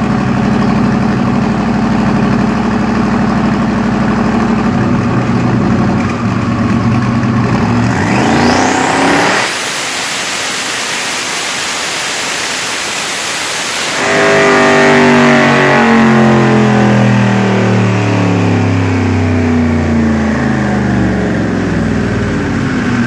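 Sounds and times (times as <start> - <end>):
deep engine note: 0.0 - 9.2, 13.8 - 23.0
rushing noise: 7.8 - 20.6.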